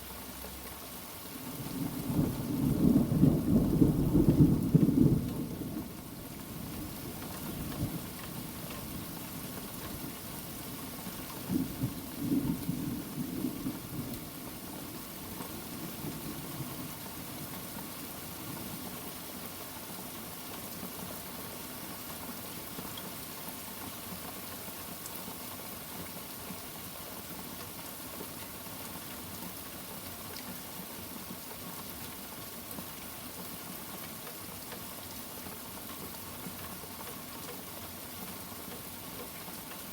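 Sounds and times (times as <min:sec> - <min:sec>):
steady rain: 0:00.0 - 0:39.9
thunder rumbling: 0:01.7 - 0:05.8.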